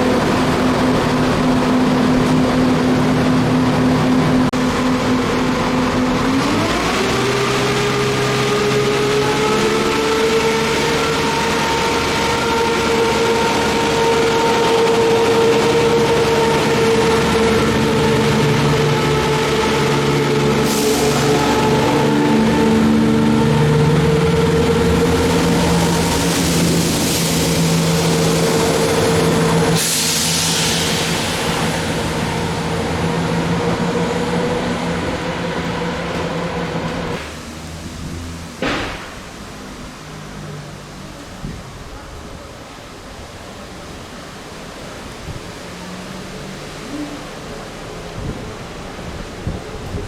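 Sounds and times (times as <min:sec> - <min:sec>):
diesel train engine running: 0:00.0 - 0:50.0
burst of hissing: 0:25.9 - 0:32.6.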